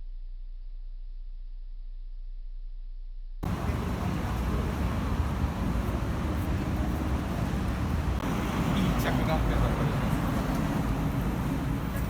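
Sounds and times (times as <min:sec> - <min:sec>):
road traffic rumble: 0:03.4 - 0:12.0.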